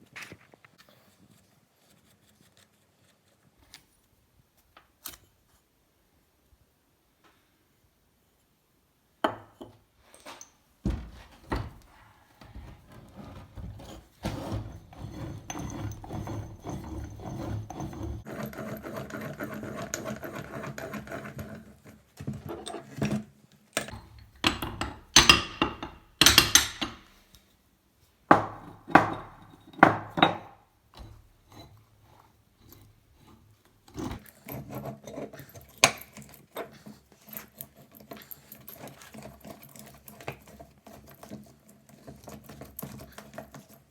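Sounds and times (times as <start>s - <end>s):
tools knocking and clanking on metal: 9.3s - 18.2s, 23.8s - 27.2s, 28.3s - 31.3s
metal scraping: 10.9s - 21.2s.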